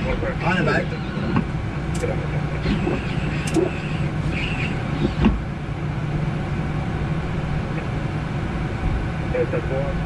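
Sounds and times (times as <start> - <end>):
constant low hum: 0.0 - 10.0.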